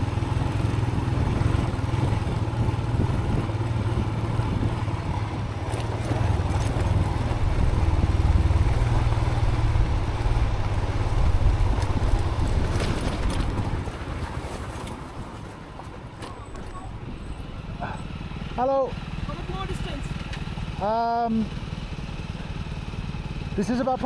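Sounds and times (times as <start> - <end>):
wind buffeting on helmet: 0.0 - 17.6
motorcycle engine rumbling: 0.0 - 24.0.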